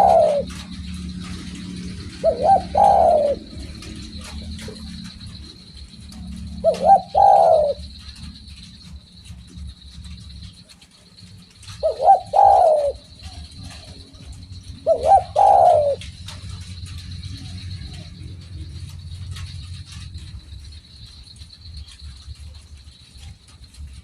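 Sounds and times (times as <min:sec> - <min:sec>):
dove cooing: 0:00.0 - 0:21.2.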